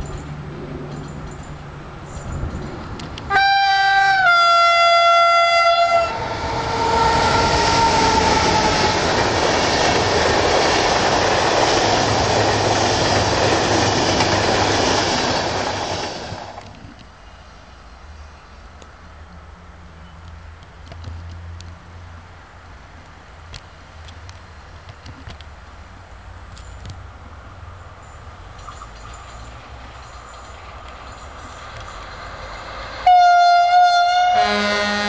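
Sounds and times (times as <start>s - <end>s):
train coaches rumbling past: 0.0s - 20.2s, 25.7s - 35.0s
locomotive horn: 3.3s - 9.2s, 33.0s - 35.0s.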